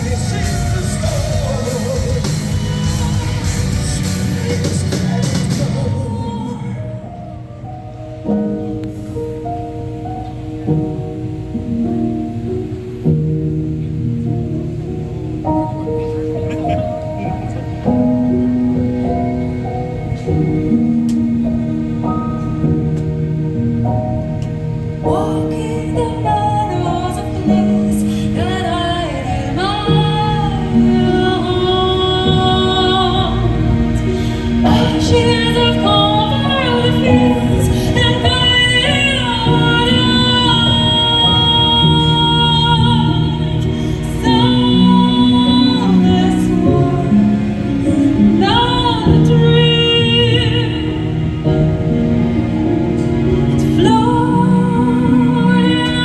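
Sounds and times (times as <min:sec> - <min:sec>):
symphonic metal band playing: 0:00.0 - 0:06.2
person singing long notes: 0:00.0 - 0:08.8.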